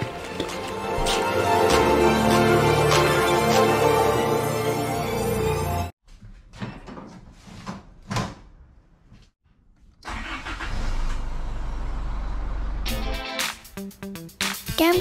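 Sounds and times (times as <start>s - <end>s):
pickup engine starting and idling: 10.0s - 12.8s.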